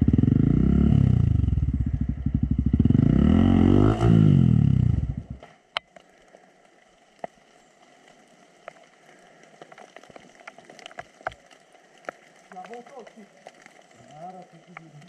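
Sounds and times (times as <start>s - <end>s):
dirt bike engine cutting out: 0.0s - 5.4s.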